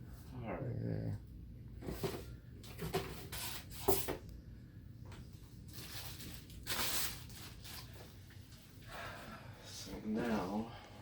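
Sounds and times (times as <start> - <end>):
packaging rustling: 5.7 - 8.2.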